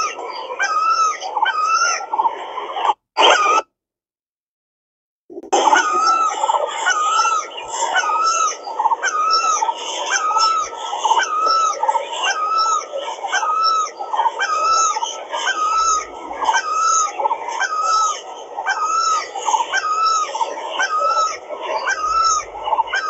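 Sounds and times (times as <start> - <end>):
background birdsong: 0.0 - 2.9, 5.6 - 23.0
bird calling repeatedly: 5.4 - 23.0.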